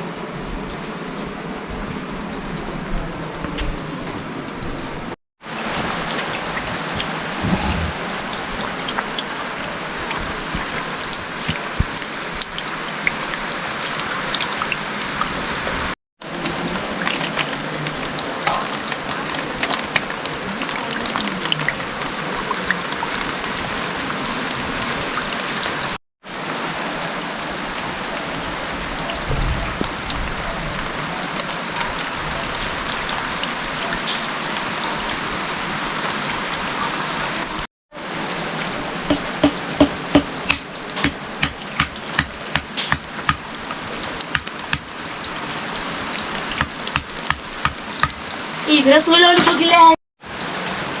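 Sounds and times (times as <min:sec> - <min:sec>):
steady rain hiss: 0:00.0 - 0:51.0
raindrop ticks: 0:08.1 - 0:15.7, 0:39.0 - 0:49.9.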